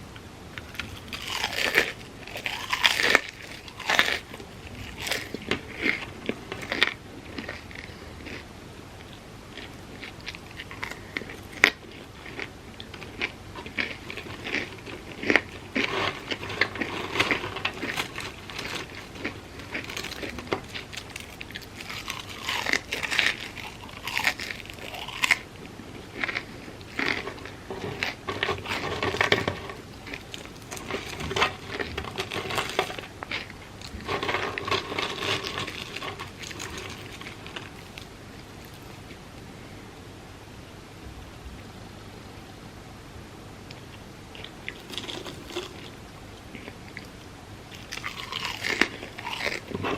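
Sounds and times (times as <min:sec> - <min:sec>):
sharp crackles of fried food: 0:00.6 - 0:08.5, 0:09.5 - 0:39.1, 0:44.4 - 0:49.9
crunchy bites: 0:00.6 - 0:39.2, 0:43.7 - 0:49.9
wet chewing: 0:00.6 - 0:39.2, 0:43.7 - 0:49.9.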